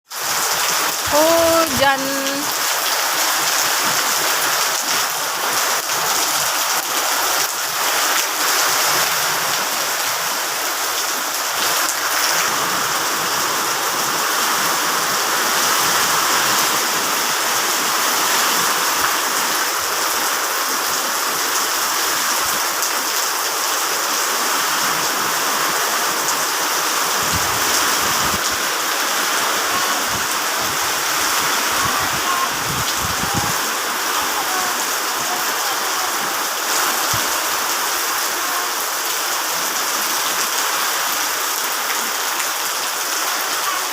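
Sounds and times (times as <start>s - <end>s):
heavy rain falling: 0.1s - 43.9s.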